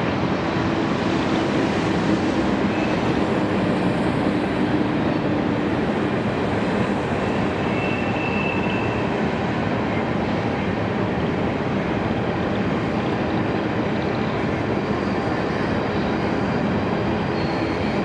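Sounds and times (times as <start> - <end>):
freight train wheels rumbling: 0.0 - 18.0.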